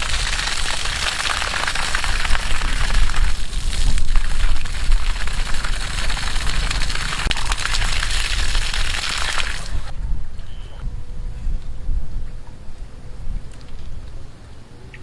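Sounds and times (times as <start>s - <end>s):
water gushing and splashing: 0.0s - 9.9s
low rumble: 0.0s - 14.3s.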